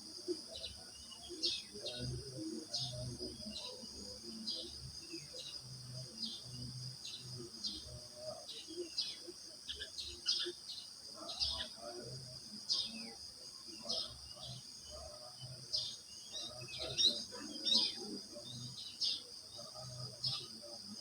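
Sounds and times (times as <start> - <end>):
crickets chirring: 0.0 - 21.0
bird chirps: 8.6 - 11.7, 13.8 - 20.5.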